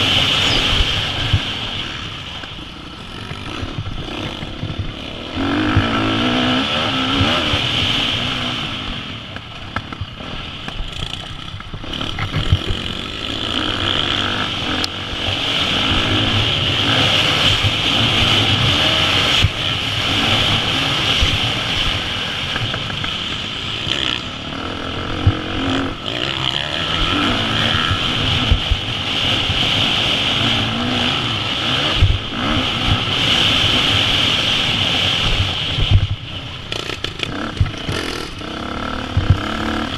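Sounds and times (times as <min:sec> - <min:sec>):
motorcycle engine revving hard: 0:00.0 - 0:39.9.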